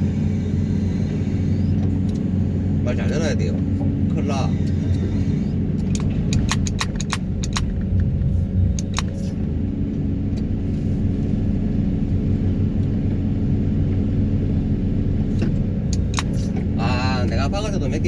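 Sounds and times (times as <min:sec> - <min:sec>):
excavator humming: 0:00.0 - 0:18.0
sharp clicks: 0:04.6 - 0:08.1, 0:08.7 - 0:09.4, 0:15.9 - 0:16.6.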